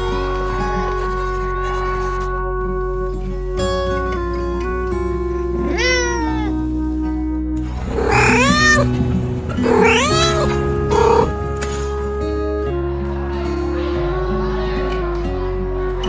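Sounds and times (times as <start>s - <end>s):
soft guitar music: 0.0s - 16.0s
cat meowing: 0.4s - 7.3s, 7.9s - 8.9s, 9.6s - 11.8s.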